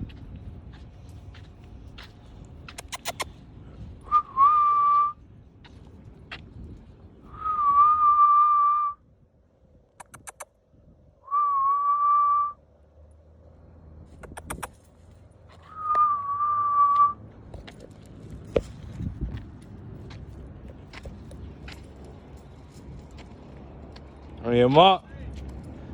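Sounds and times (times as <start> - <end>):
quick clicks: 2.7 - 3.3, 10.0 - 10.5, 14.2 - 14.9
person whistling long notes: 4.1 - 5.2, 7.3 - 9.0, 11.3 - 12.6, 15.7 - 17.2.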